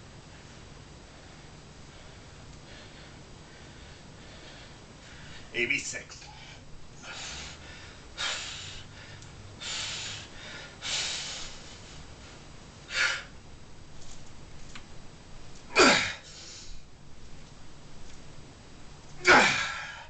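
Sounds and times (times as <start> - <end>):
man breathing forcefully: 1.1 - 5.5, 6.3 - 13.4
man grunting: 15.7 - 16.2, 19.2 - 20.0.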